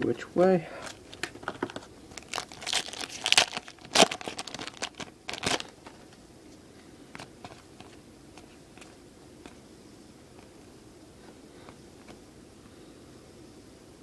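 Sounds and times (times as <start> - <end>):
foil wrappers crinkling: 0.8 - 6.1.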